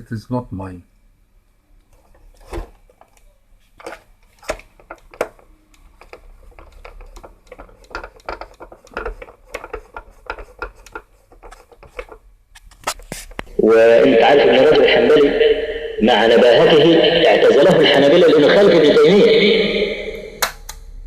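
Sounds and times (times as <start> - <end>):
clicks and taps of plastic parts: 2.9 - 12.8.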